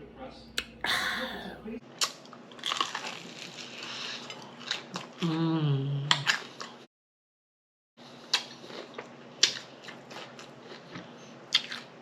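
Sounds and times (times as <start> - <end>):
chewing crispy fried food: 2.0 - 5.5, 8.0 - 12.0
person humming: 5.2 - 6.2.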